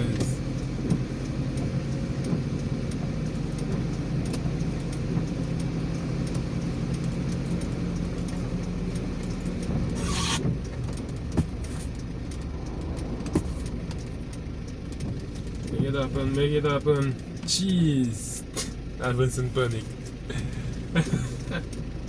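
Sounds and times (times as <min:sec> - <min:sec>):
car engine and road drone: 0:00.0 - 0:22.0
short hiss: 0:10.0 - 0:10.4.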